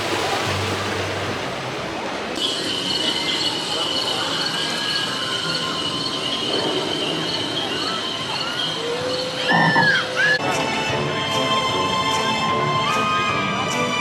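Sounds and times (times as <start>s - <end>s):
crickets chirring: 2.4s - 10.4s.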